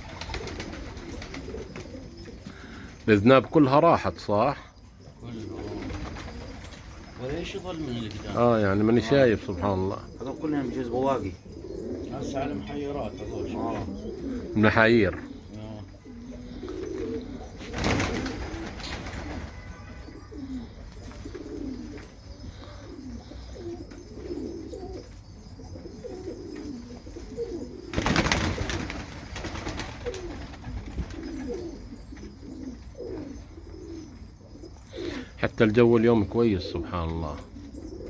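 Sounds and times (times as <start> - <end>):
pigeons cooing: 0.0 - 38.0.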